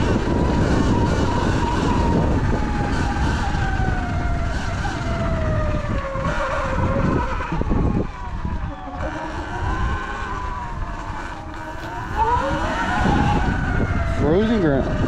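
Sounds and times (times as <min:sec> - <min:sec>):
electric motor whining: 0:00.0 - 0:15.0
wind rumble on microphone: 0:00.0 - 0:15.0.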